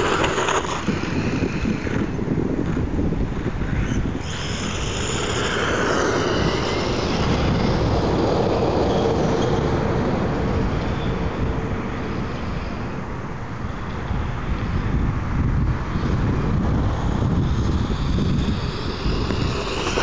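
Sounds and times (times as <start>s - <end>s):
electric motor whining: 0.0s - 2.9s, 3.6s - 9.4s, 17.1s - 20.0s
wind rumble on microphone: 0.0s - 20.0s.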